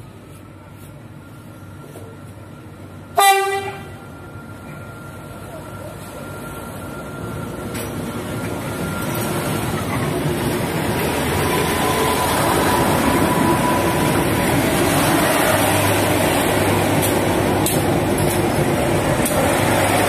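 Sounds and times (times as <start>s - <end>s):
diesel train passing slowly: 0.0s - 20.0s.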